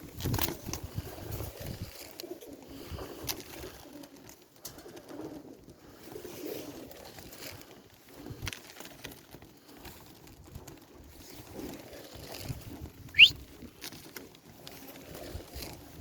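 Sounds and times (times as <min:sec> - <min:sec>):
pigeons cooing: 0:00.6 - 0:08.4
loud rising whistle: 0:13.2 - 0:13.4.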